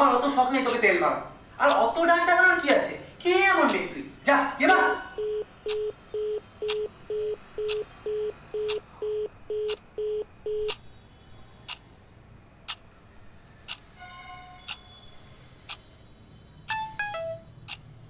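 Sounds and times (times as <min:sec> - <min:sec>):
sharp ticking: 0:00.4 - 0:01.0, 0:01.6 - 0:02.0, 0:04.6 - 0:08.8
phone busy tone beeps: 0:05.1 - 0:10.8, 0:16.7 - 0:17.5.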